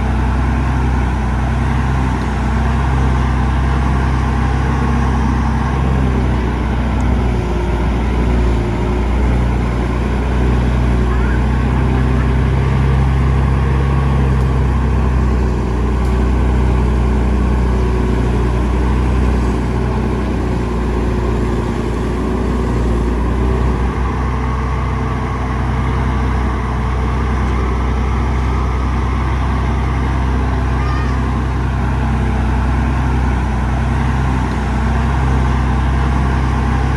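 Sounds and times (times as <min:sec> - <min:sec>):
heavy diesel engine humming: 0:00.0 - 0:36.9.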